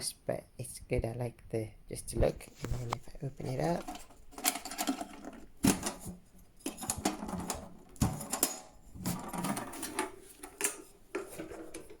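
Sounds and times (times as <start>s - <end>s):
metal box latch and lid clanking: 3.8s - 12.0s.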